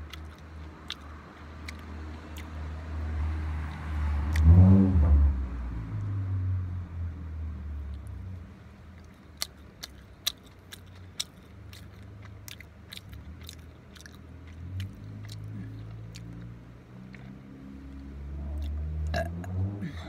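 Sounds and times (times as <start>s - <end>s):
mouth clicks and smacks: 0.0s - 2.7s, 8.8s - 19.6s
person chewing: 0.0s - 2.8s, 3.6s - 4.5s, 7.8s - 19.8s.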